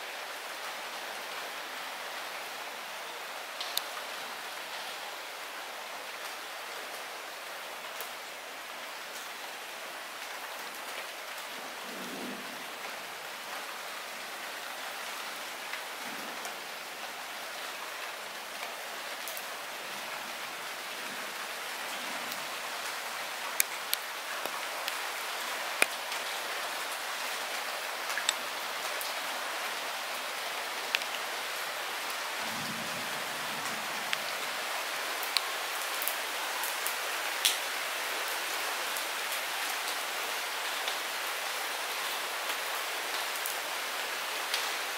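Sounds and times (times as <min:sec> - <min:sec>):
light rain falling: 0:00.0 - 0:44.9.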